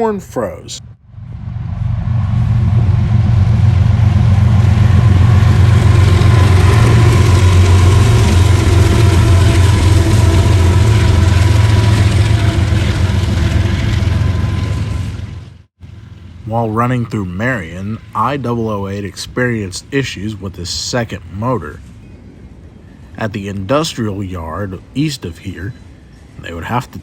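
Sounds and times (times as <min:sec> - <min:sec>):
diesel locomotive engines humming: 0:00.0 - 0:27.0
train clatter over rails: 0:02.2 - 0:15.7.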